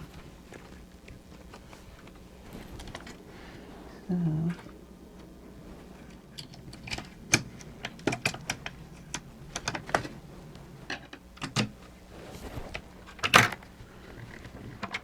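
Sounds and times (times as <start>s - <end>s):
plastic parts clicking and tapping: 6.0s - 10.2s, 10.9s - 11.9s, 13.1s - 15.0s.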